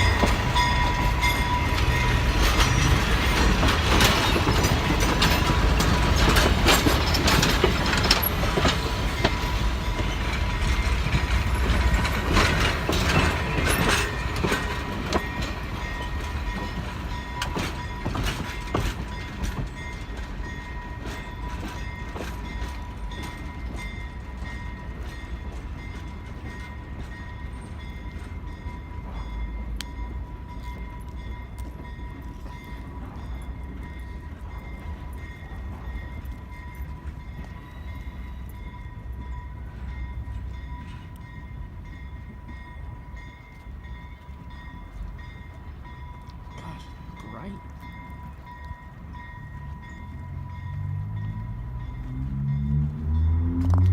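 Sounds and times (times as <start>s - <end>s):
train wheel clatter and knocks: 0.0s - 28.4s.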